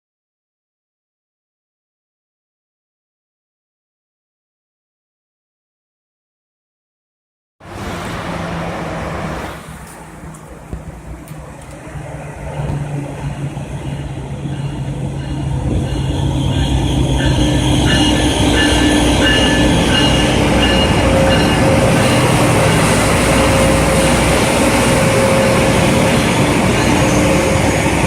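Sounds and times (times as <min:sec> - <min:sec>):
train rumbling: 0:07.6 - 0:28.0.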